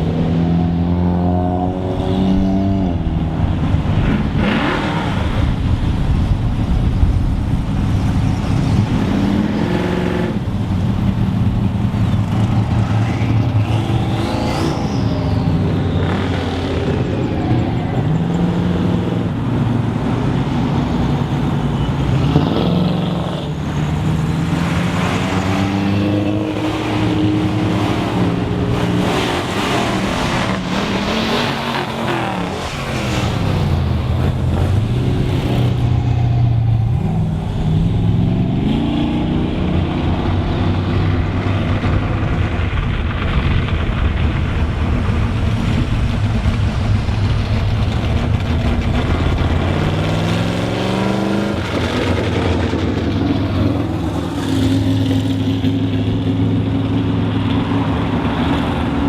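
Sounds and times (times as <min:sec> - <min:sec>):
cars revving past: 0:00.0 - 0:42.7.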